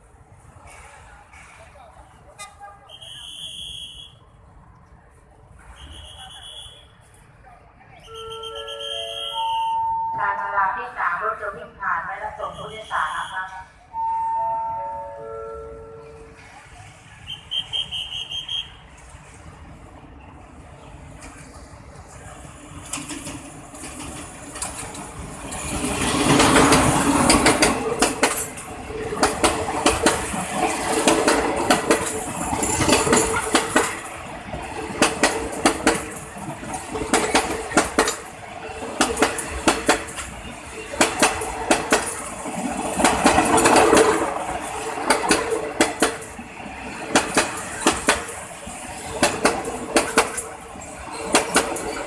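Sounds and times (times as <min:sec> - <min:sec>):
train rumble: 0:04.4 - 0:52.0
train wheels clacking over rail joints: 0:22.8 - 0:52.0.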